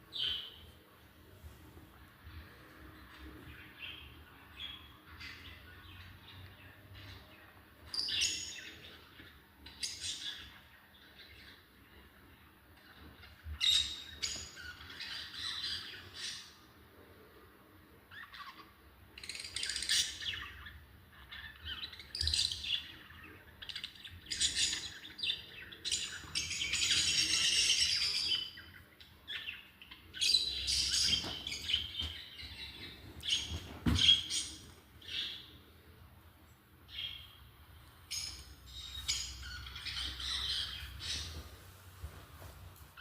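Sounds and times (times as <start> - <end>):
lovebirds chirping and squawking: 0.1 - 0.7, 2.2 - 11.7, 12.8 - 16.7, 18.1 - 35.6, 36.9 - 41.6.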